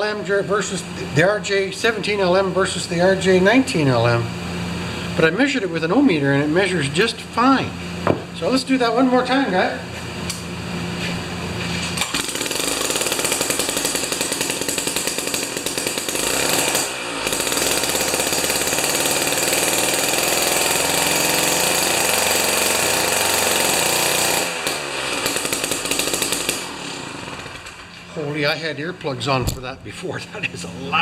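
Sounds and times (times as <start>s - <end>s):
ice auger engine running: 11.8s - 27.9s.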